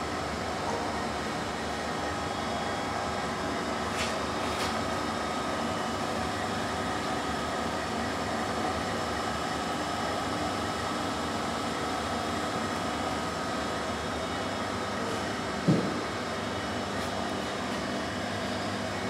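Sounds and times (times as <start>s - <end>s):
high machine whine: 0.0s - 19.0s
lathe machine hum and hiss: 0.0s - 19.0s.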